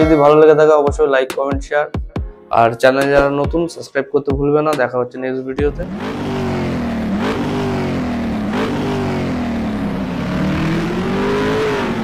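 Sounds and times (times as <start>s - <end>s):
motorcycle engine revving: 5.6s - 12.0s.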